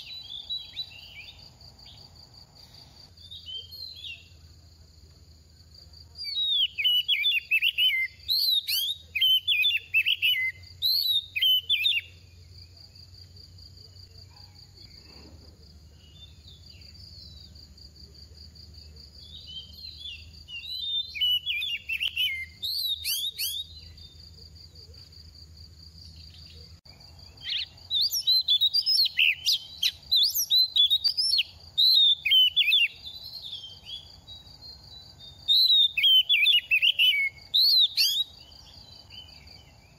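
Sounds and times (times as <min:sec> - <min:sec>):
insect trill: 0:00.0 - 0:39.9
bird singing whistled phrases: 0:06.2 - 0:12.2, 0:19.2 - 0:24.1, 0:27.4 - 0:34.1, 0:35.4 - 0:38.5.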